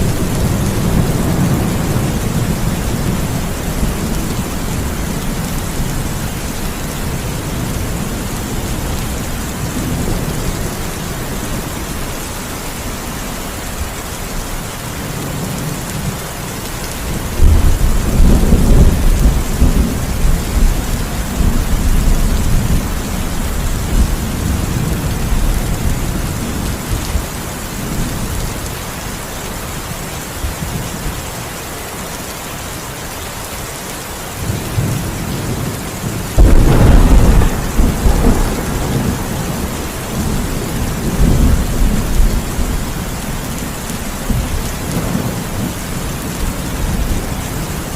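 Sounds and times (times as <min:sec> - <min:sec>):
thunder rumbling: 0:00.0 - 0:11.9, 0:17.1 - 0:27.3, 0:34.4 - 0:47.9
heavy rain falling: 0:00.0 - 0:47.9
loud thunderclap: 0:17.3 - 0:22.9, 0:36.4 - 0:43.1.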